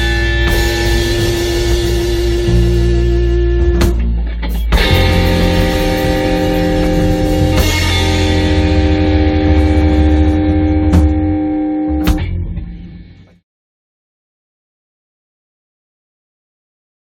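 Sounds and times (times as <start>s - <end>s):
drum and cymbal hits: 0.0s - 13.4s
electric guitar sustaining chord: 0.0s - 13.4s
rumbling bass: 0.0s - 13.4s.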